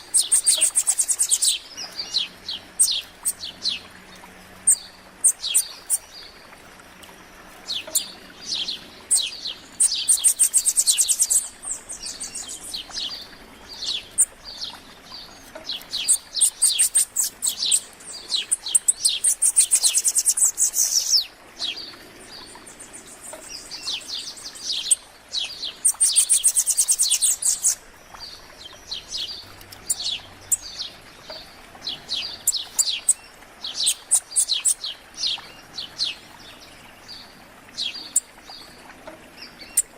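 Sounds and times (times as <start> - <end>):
songbirds chirping and singing: 0.0 - 39.9
fast high trilled birdsong: 15.7 - 21.2.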